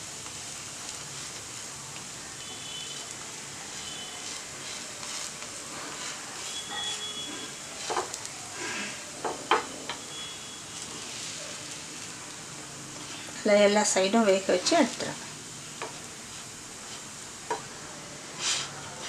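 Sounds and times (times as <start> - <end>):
bread sizzling in fat: 0.0 - 19.0
wooden spatula scraping and tapping: 3.7 - 8.3, 15.8 - 17.7.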